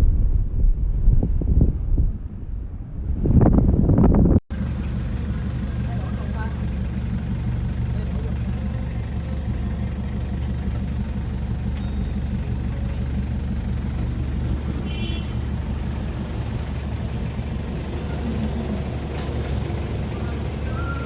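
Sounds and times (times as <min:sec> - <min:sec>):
vehicle engine and road noise: 0:00.0 - 0:21.0
faint high chirp: 0:11.7 - 0:12.5, 0:20.6 - 0:21.0.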